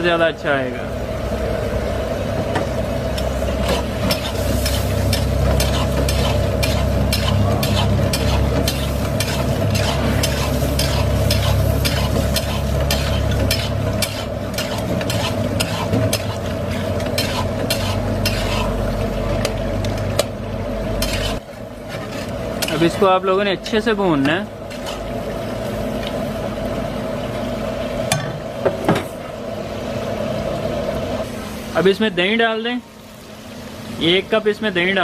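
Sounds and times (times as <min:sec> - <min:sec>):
meat sizzling in hot oil: 0:02.8 - 0:19.8, 0:21.0 - 0:23.5, 0:29.7 - 0:35.0
spatula scraping a pan: 0:03.6 - 0:18.8, 0:21.0 - 0:23.0, 0:24.7 - 0:25.1.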